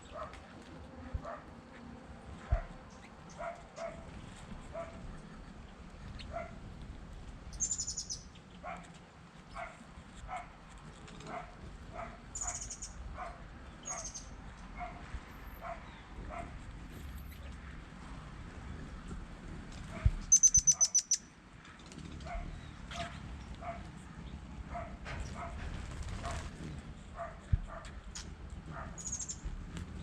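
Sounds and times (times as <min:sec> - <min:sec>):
faint dog barking: 0:00.1 - 0:01.8, 0:02.4 - 0:05.2, 0:06.1 - 0:06.7, 0:08.6 - 0:16.6, 0:22.2 - 0:24.0, 0:24.6 - 0:26.5, 0:27.1 - 0:28.0
high-pitched bird chirps: 0:07.5 - 0:08.3, 0:12.4 - 0:13.0, 0:13.8 - 0:14.3, 0:20.3 - 0:21.2, 0:29.0 - 0:29.4.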